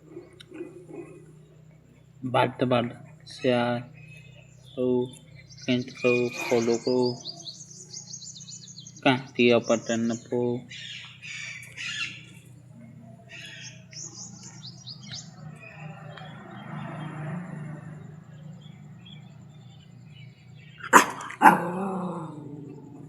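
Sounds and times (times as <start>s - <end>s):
dog barking: 0.0s - 1.4s, 20.8s - 23.0s
small birds chirping: 0.0s - 23.0s.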